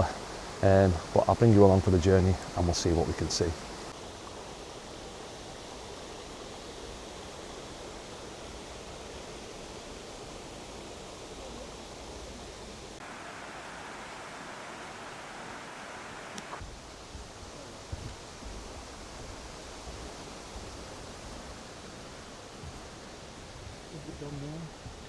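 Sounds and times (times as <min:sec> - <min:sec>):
river rushing: 0:00.0 - 0:16.6.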